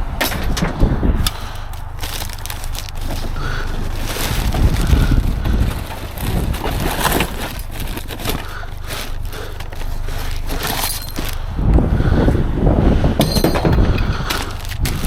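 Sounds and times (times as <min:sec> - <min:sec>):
junk crunching and scraping: 0:00.0 - 0:15.0
low rumble: 0:00.0 - 0:15.0
sharp knocks and crackles: 0:00.2 - 0:11.8, 0:13.2 - 0:15.0.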